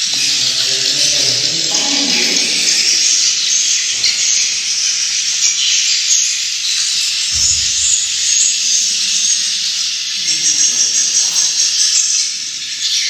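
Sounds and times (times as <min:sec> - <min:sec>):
low thump: 0:07.3 - 0:09.2.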